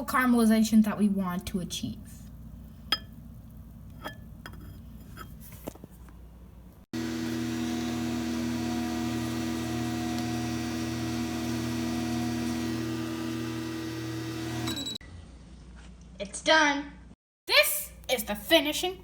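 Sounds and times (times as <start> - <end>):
microwave oven humming: 7.0 - 15.0.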